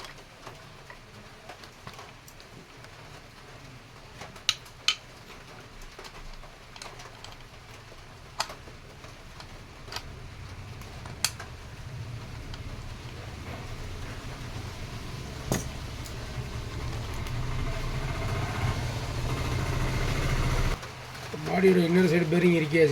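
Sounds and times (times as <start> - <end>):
metallic clicks of engine parts: 5.8 - 12.8
low hum: 8.2 - 20.8.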